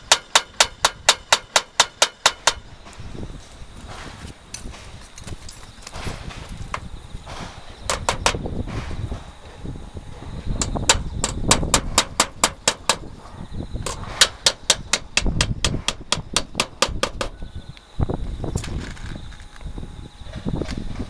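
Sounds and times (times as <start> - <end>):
nailing roofing sharp clacks: 0.0 - 2.7, 5.8 - 9.0, 10.6 - 13.2, 13.8 - 17.4.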